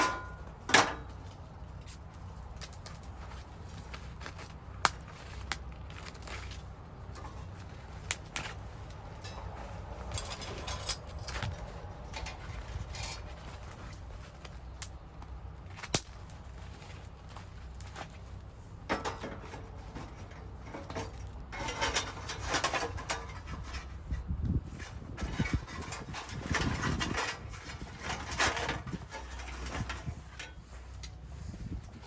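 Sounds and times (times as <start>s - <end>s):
firewood cracking and popping: 0.0s - 23.6s
low rumble of flames: 0.0s - 32.0s.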